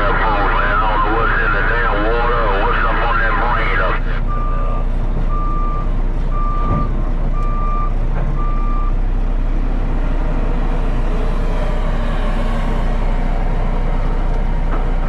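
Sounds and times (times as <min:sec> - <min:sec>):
heavy engine rumble: 0:00.0 - 0:15.0
backup alarm beeping: 0:03.9 - 0:08.9.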